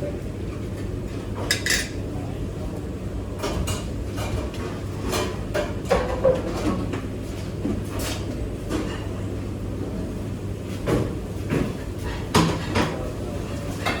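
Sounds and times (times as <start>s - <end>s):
dishes and cutlery clinking: 1.4s - 2.0s, 13.7s - 14.0s.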